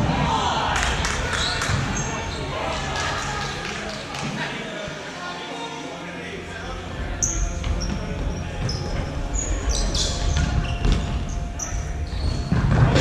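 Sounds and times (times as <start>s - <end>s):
people shouting and cheering: 0.0s - 5.9s
sneaker squeaks on floor: 7.2s - 12.8s.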